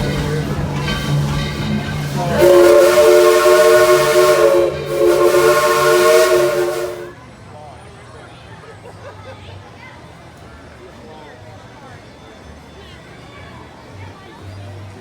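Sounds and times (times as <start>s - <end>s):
steam hiss: 0.0s - 7.1s
steam locomotive chime whistle: 0.0s - 7.2s.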